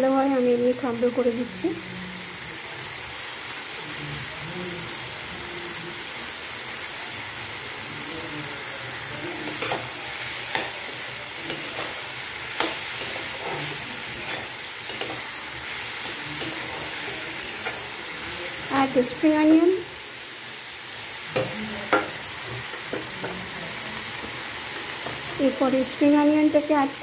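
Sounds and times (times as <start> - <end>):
vegetables sizzling in a wok: 0.0 - 27.0
metal spatula clacking on pan: 12.6 - 15.2.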